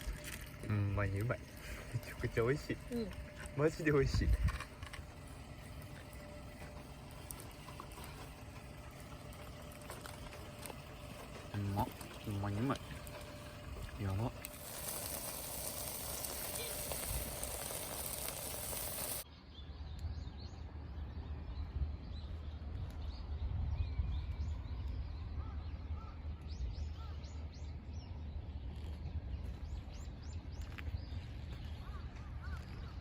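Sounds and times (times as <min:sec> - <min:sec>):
small birds chirping: 0:05.0 - 0:20.2, 0:24.2 - 0:33.0.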